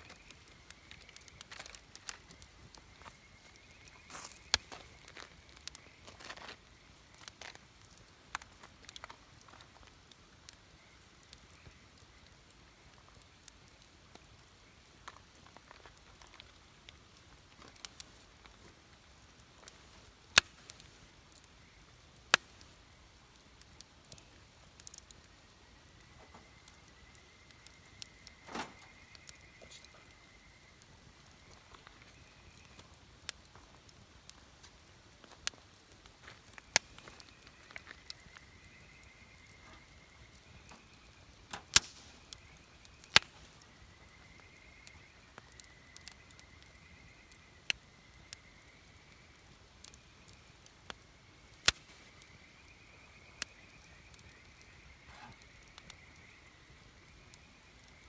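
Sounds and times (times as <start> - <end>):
campfire crackling: 0.0 - 58.0.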